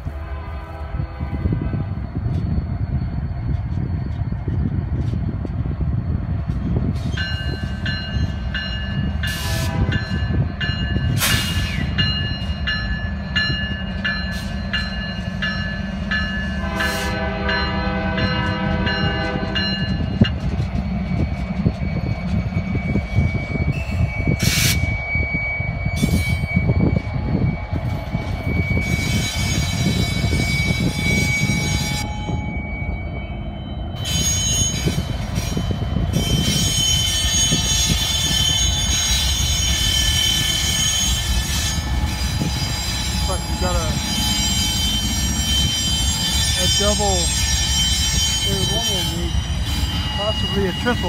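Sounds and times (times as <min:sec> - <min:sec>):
diesel locomotives rumbling past: 0:00.0 - 0:51.0
train wheels squealing: 0:00.9 - 0:51.0
multi-chime air horn: 0:50.0 - 0:51.0.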